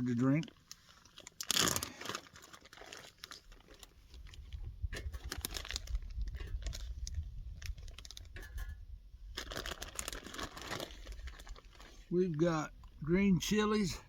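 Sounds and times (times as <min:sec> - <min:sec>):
food packages rustling: 0:00.0 - 0:12.4.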